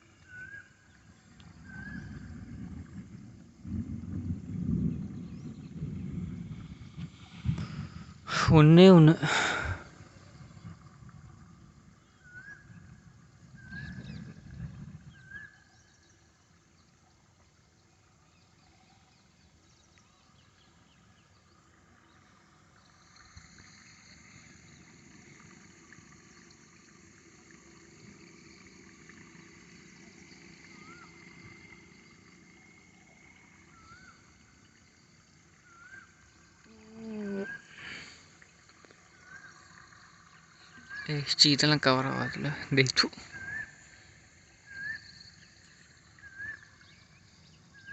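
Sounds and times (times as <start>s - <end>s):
low rumble: 1.1s - 15.9s
insects shrilling: 22.9s - 47.9s
animal rising chirps: 35.6s - 38.2s.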